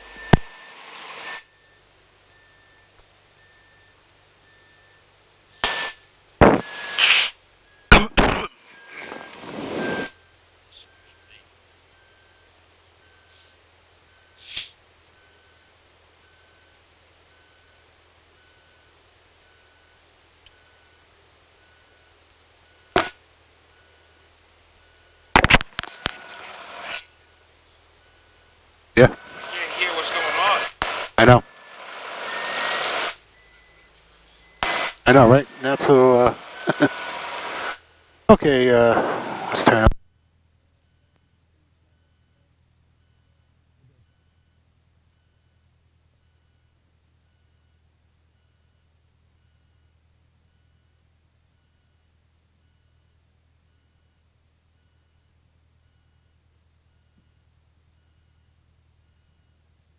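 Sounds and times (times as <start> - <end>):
faint short beeps: 0.0 - 6.6, 7.6 - 24.2, 28.0 - 31.4, 33.2 - 36.9, 40.8 - 59.7
radio static hiss: 0.0 - 22.0, 22.6 - 23.9, 25.3 - 40.0
radio transmission clicks: 0.3 - 0.6, 5.6 - 11.4, 22.9 - 23.2, 25.3 - 27.1, 29.0 - 40.0
headset hiss: 5.6 - 7.4, 8.9 - 10.1, 14.3 - 14.8, 25.4 - 27.1, 29.0 - 39.9
static bursts on microphone: 5.6 - 10.2, 25.3 - 27.1, 28.9 - 33.4, 34.6 - 39.9.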